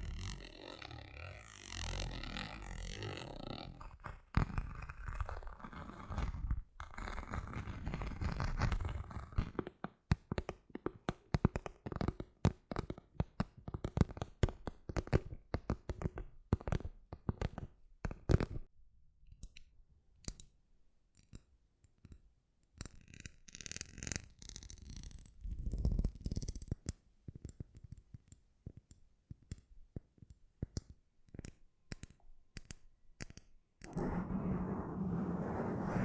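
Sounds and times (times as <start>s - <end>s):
hand scratching and rubbing: 33.8s - 36.0s.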